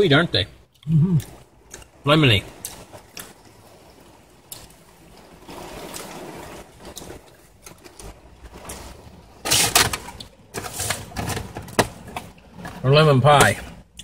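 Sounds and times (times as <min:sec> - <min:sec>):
heavy rain on a car: 0:01.4 - 0:10.9.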